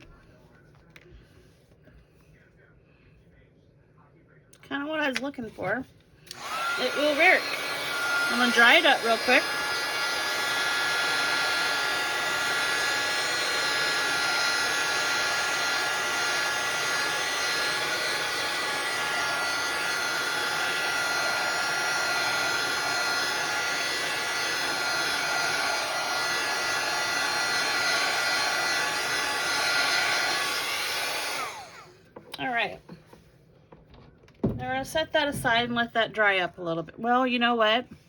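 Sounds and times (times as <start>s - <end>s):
heat tool blowing with motor whine: 6.3s - 32.5s.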